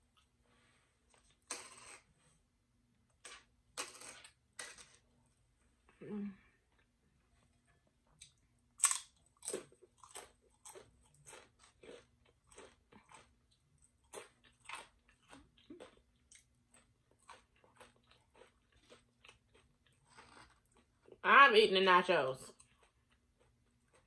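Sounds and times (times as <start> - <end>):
chewing tortilla chips: 1.1 - 2.2, 3.1 - 5.2, 8.1 - 21.2, 22.5 - 24.0.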